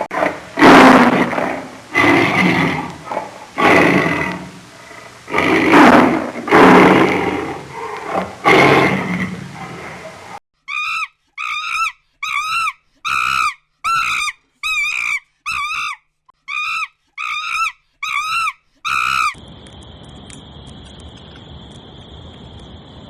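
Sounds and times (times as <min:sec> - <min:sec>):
faint hiss: 0:00.0 - 0:10.4
animal calling: 0:00.1 - 0:19.4.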